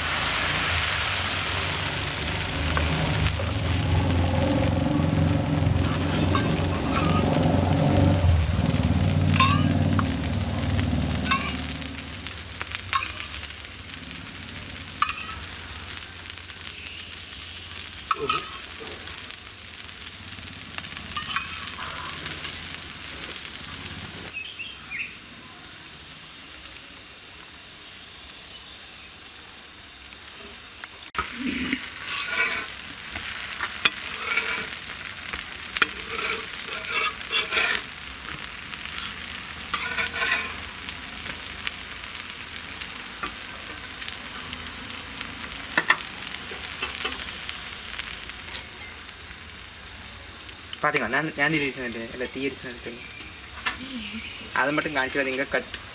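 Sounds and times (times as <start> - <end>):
food sizzling in hot oil: 0.0 - 55.9
spoon scraping a pan: 0.1 - 14.0, 14.8 - 15.7, 18.1 - 19.3, 21.0 - 24.2, 31.2 - 41.4.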